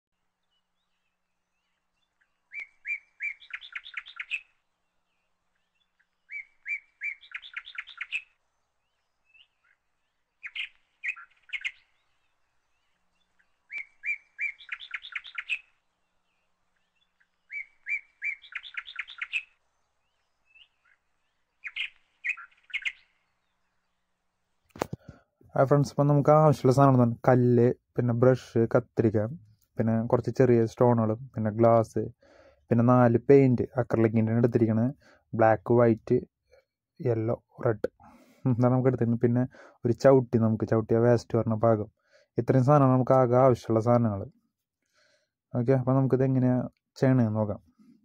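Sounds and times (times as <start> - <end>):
bird singing: 0.2 - 24.8.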